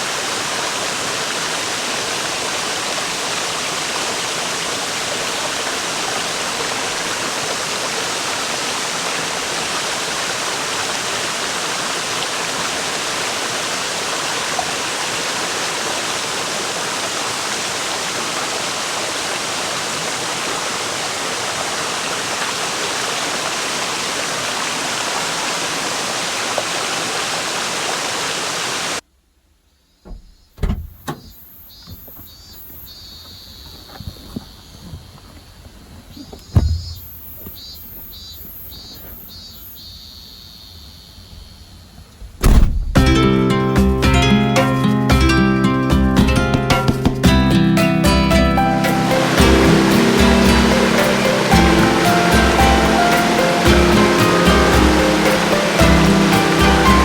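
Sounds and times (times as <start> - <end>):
river water rushing over rocks: 0.0 - 29.0, 48.6 - 57.0
sharp knocks: 36.5 - 37.0, 42.4 - 43.2.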